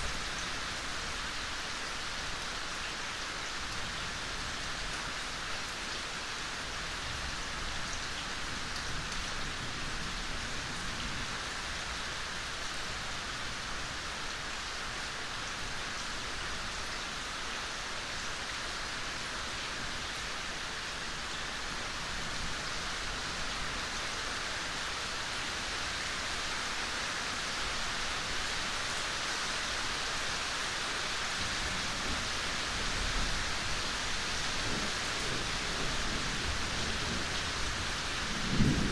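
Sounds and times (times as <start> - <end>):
soft rain falling: 0.0 - 38.9.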